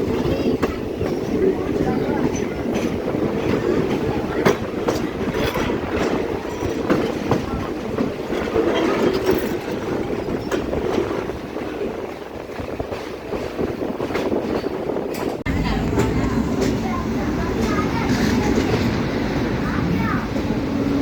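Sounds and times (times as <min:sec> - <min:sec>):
train rumble: 0:00.0 - 0:21.0
wheels clicking over rail joints: 0:00.0 - 0:21.0.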